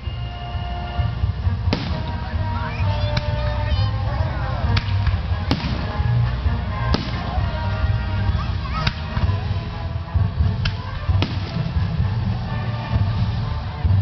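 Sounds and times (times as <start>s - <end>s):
fireworks exploding: 0.0s - 14.0s
low rumble of fireworks display: 0.0s - 14.0s.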